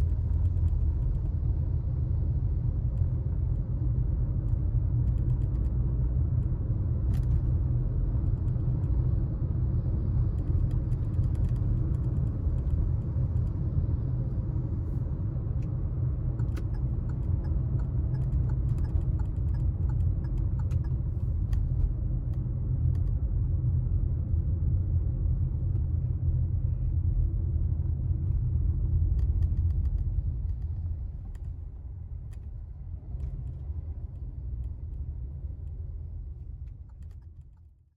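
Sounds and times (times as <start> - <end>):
car engine and road noise: 0.0 - 37.9.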